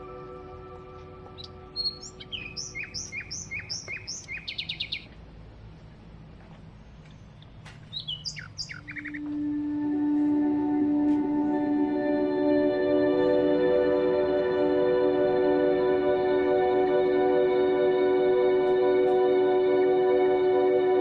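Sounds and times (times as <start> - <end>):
soft background music: 0.0 - 4.6, 8.1 - 21.0
bird singing chirps and trill: 0.0 - 5.2, 6.9 - 9.3.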